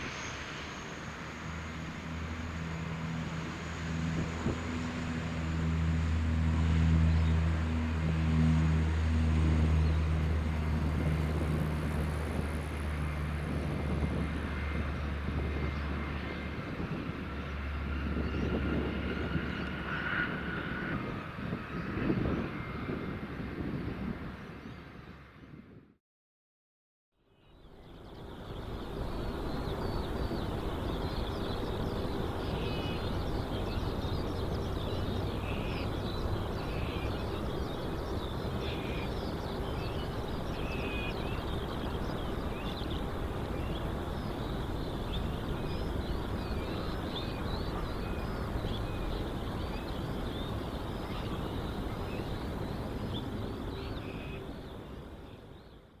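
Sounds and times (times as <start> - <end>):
small birds chirping: 27.4 - 56.0.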